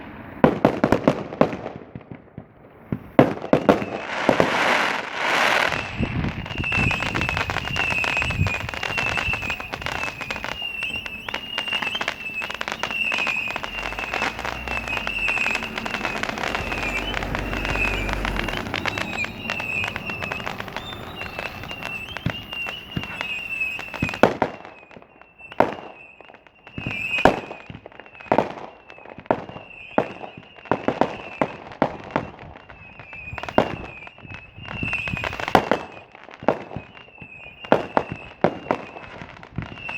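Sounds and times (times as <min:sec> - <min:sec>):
fireworks bangs and crackle: 0:00.0 - 0:39.9.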